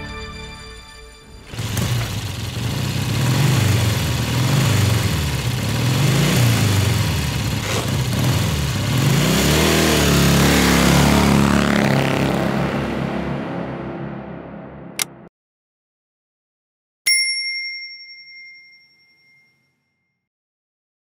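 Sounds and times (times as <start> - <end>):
motorcycle engine revving: 1.4 - 15.1.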